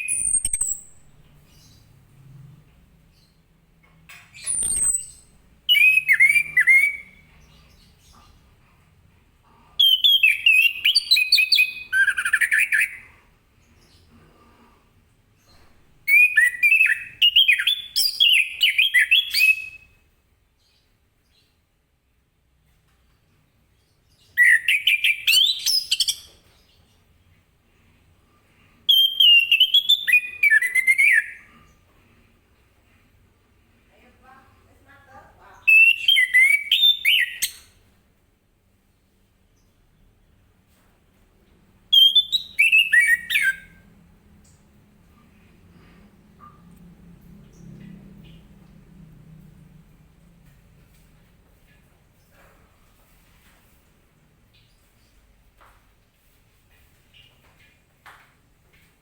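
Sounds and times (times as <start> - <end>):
thrush singing whistled notes: 4.4 - 7.2
thrush whistling song: 4.4 - 7.2, 28.9 - 31.4, 35.7 - 37.6, 41.9 - 43.8.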